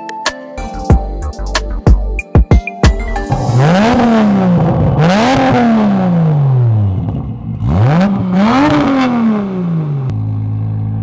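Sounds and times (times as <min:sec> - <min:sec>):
car engine revving: 0:03.2 - 0:11.0.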